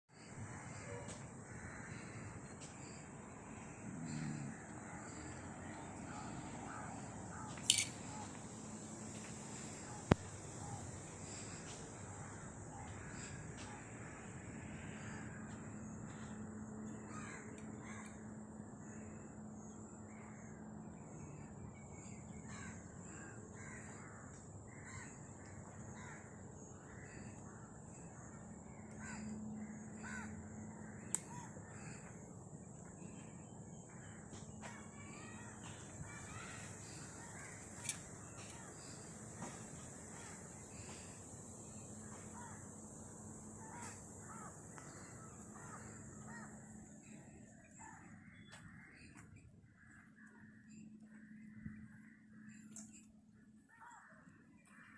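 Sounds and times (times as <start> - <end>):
birds calling: 0.1 - 54.9.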